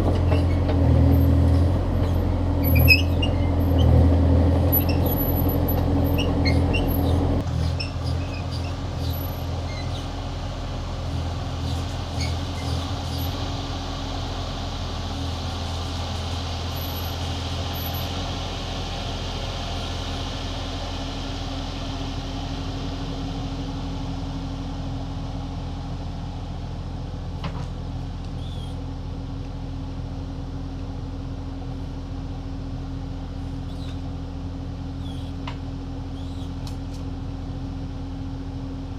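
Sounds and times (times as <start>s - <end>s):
excavator engine running: 0.0s - 38.9s
short high squeaks: 1.5s - 4.0s, 4.7s - 10.1s, 11.7s - 13.3s, 28.4s - 28.8s, 33.6s - 34.0s, 35.0s - 35.4s, 36.1s - 36.6s.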